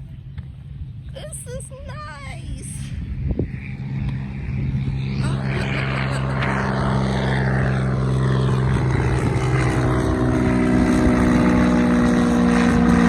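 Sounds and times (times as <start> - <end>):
propeller airplane droning: 0.0 - 13.0.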